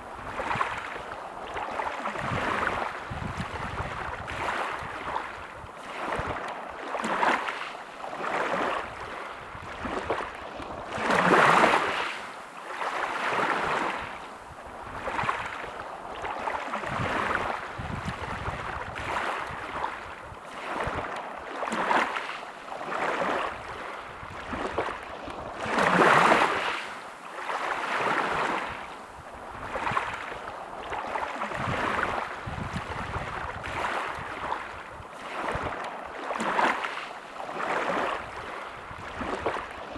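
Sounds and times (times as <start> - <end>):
sea waves washing in: 0.0 - 39.9.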